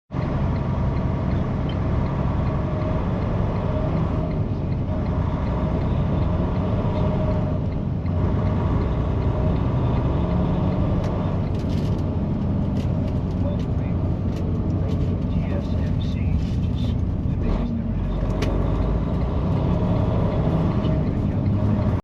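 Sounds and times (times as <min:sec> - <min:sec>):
truck engine and road noise: 0:00.1 - 0:22.0.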